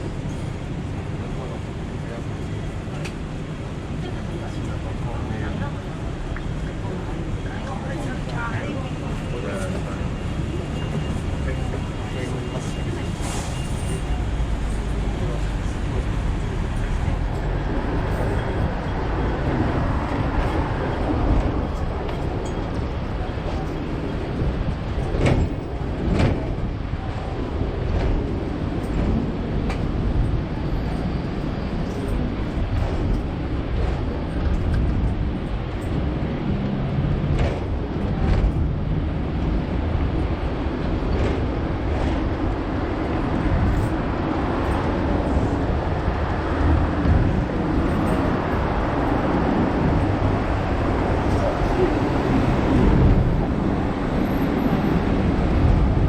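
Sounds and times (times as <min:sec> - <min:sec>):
tram rumbling on tracks: 0:00.0 - 0:56.0.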